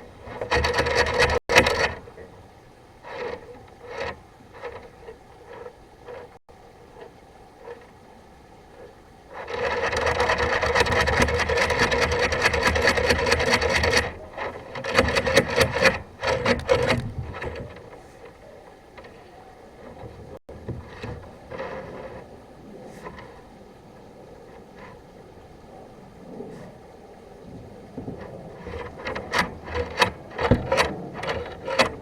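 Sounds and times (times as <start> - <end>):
cable scraping through drain pipe: 0.0 - 2.4, 3.0 - 8.0, 8.7 - 25.1, 27.5 - 32.0.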